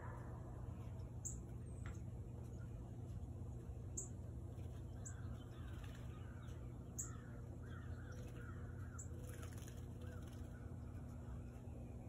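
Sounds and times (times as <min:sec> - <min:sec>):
steady low hum: 0:00.0 - 0:12.0
faint bird calls: 0:03.9 - 0:12.0.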